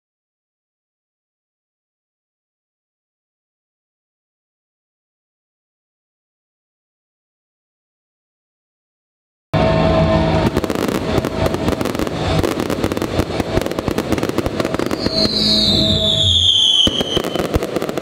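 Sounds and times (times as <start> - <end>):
music playing: 9.6 - 18.0
whistling firework: 9.6 - 18.0
fireworks crackling and banging: 10.0 - 18.0.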